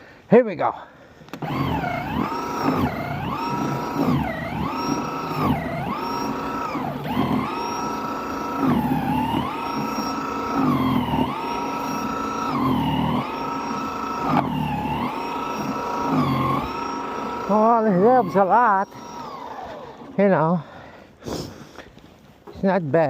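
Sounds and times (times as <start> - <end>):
snow blower motor whining: 1.3 - 20.6.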